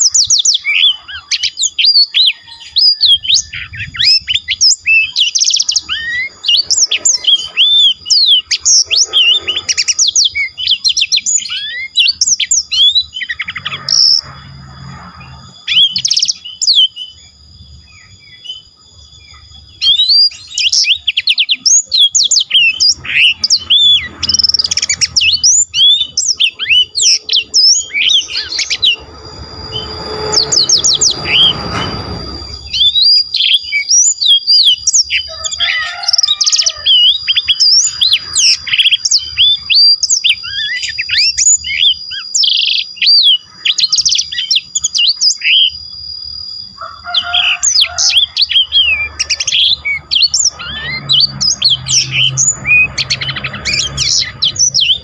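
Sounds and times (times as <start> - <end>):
songbird singing: 0.0 - 55.0
rush of noise: 22.5 - 33.4, 47.3 - 55.0.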